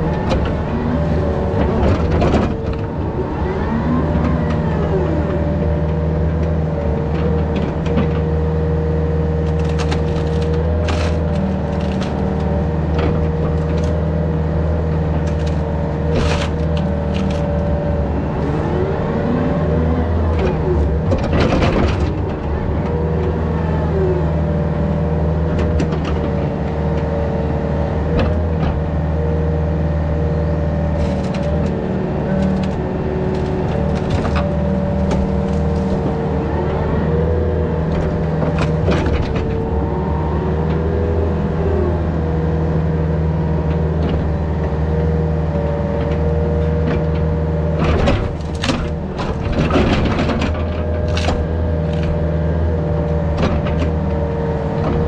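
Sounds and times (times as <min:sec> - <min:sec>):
excavator diesel engine: 0:00.0 - 0:55.0
sharp cracks and knocks: 0:09.4 - 0:14.1, 0:15.2 - 0:17.7, 0:31.0 - 0:36.4, 0:47.8 - 0:52.3.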